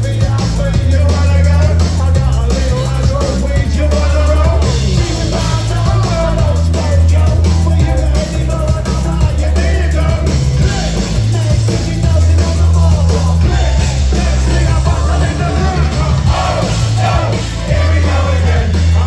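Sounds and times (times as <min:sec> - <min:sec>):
heavy bass line: 0:00.0 - 0:19.0
live band music: 0:00.0 - 0:19.0.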